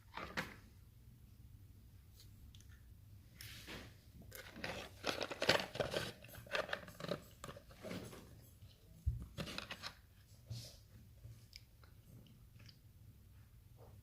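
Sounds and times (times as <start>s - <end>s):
gum packaging crinkling: 4.3s - 7.9s.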